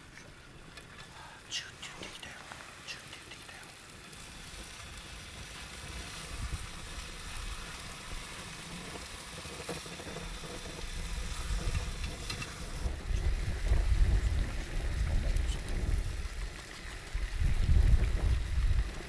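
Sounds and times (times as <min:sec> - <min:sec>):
food sizzling in a pan: 0:02.6 - 0:19.0
wind rumbling on microphone: 0:04.6 - 0:19.0.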